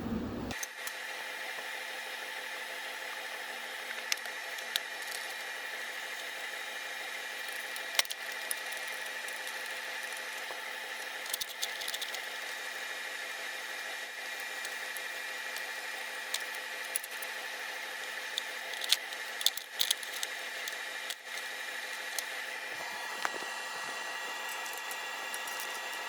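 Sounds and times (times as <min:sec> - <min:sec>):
electric tool motor whining: 0:02.3 - 0:26.0.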